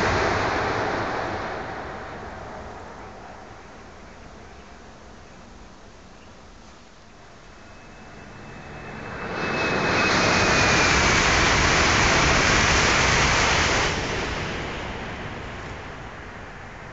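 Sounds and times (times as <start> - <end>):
train rushing past: 0.0 - 4.0, 7.3 - 16.7
high train whine: 0.0 - 6.2, 6.8 - 16.9.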